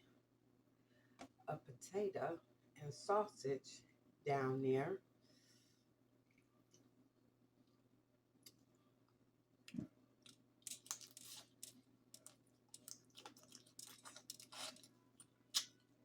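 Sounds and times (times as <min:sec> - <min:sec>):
food being chewed: 0:08.4 - 0:16.0.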